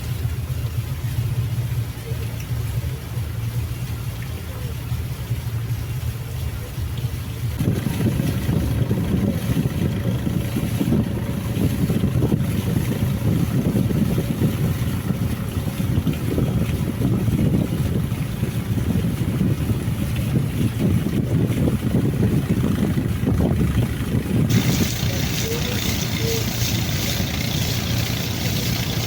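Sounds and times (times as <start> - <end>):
boat engine rumbling: 0.0 - 29.0
wind buffeting microphone: 7.5 - 29.0.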